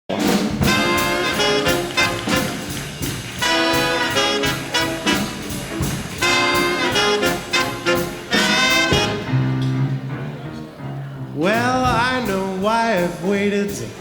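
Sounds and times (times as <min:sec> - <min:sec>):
brass section chords and hits: 0:00.1 - 0:10.4
swing big band playing: 0:00.1 - 0:14.0.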